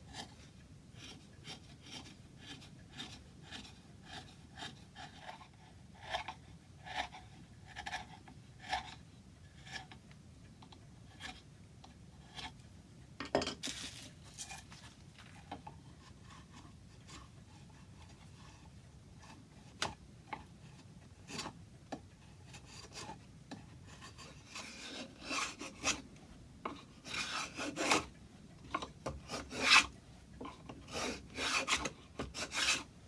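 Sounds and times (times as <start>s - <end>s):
hand tool scraping wood: 0.1s - 9.0s, 13.6s - 18.6s, 22.4s - 26.1s, 26.7s - 32.9s.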